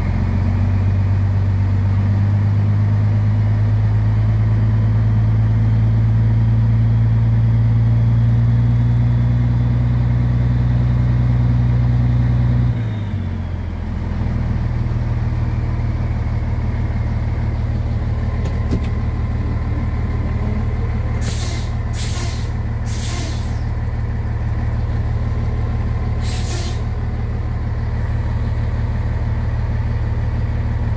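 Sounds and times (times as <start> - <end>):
diesel truck engine: 0.0 - 30.9
air brake hisses: 21.2 - 23.7, 26.2 - 26.9.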